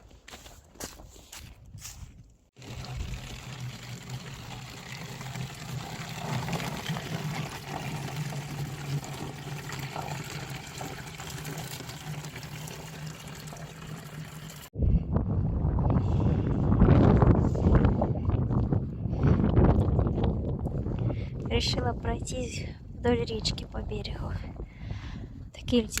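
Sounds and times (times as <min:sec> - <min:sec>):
water pouring into a container: 0:02.6 - 0:14.7.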